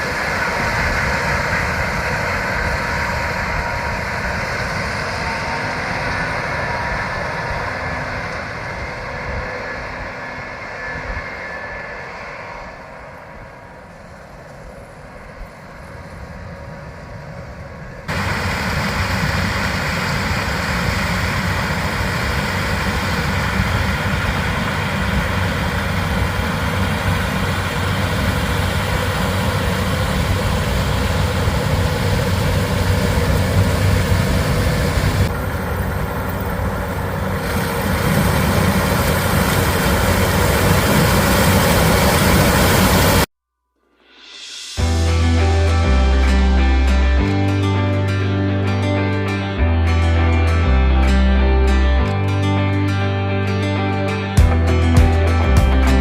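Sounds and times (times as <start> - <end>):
farm machinery engine running: 0.0 - 9.6, 18.1 - 43.3, 49.0 - 56.0.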